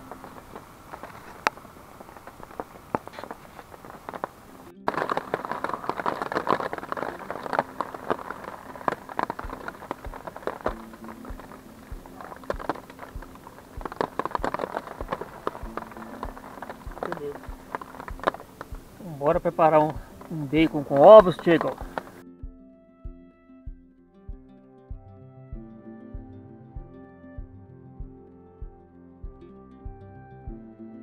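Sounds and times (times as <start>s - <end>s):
heavy rain falling: 0.0s - 22.2s.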